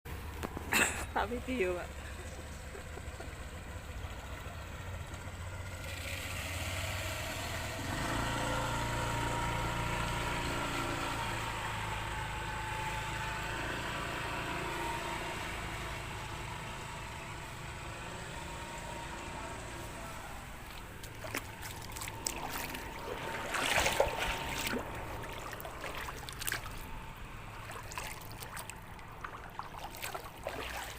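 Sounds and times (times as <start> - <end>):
vehicle engine running: 0.1 - 30.9
floodwater splashing and sloshing: 19.8 - 30.9.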